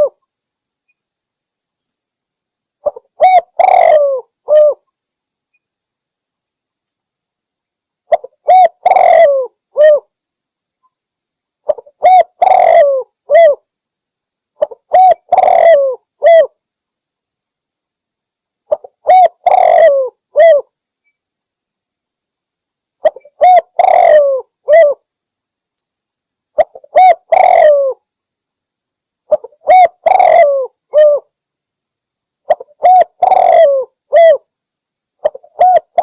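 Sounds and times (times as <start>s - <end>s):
dove cooing: 0.0s - 0.2s, 2.8s - 4.8s, 8.1s - 10.1s, 11.7s - 13.6s, 14.6s - 16.5s, 18.7s - 20.7s, 23.0s - 25.0s, 26.6s - 28.0s, 29.3s - 31.3s, 32.5s - 34.4s, 35.2s - 36.0s.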